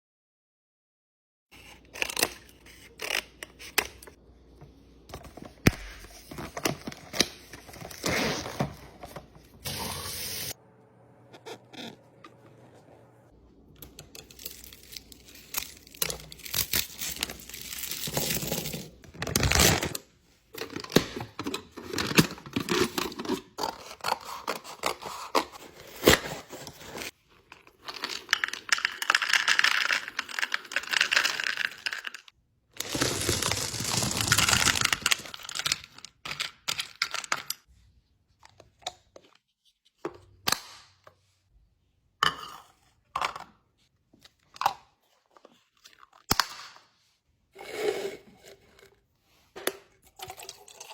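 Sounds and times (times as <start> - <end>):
packaging tearing and crinkling: 14.3 - 20.0, 32.8 - 35.9
items clicking and knocking: 18.0 - 37.7.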